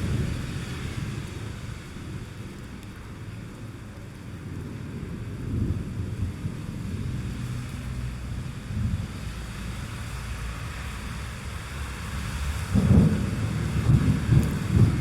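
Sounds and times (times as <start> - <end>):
rain hiss: 0.0 - 15.0
rolling thunder rumble: 12.4 - 15.0.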